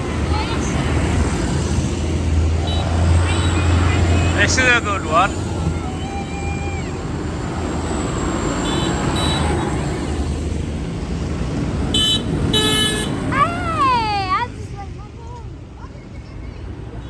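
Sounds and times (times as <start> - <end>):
tractor engines running: 0.0 - 17.0
loud horn blasts: 2.6 - 5.1, 8.5 - 9.8, 11.9 - 13.3
horn toots: 8.5 - 9.8, 11.9 - 13.5.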